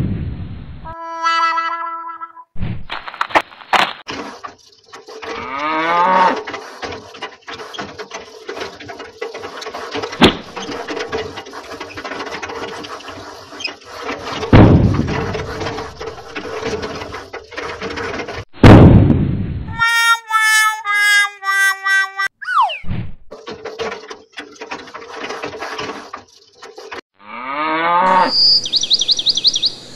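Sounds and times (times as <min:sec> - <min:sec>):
cow mooing: 0:05.4 - 0:06.4, 0:27.2 - 0:28.4.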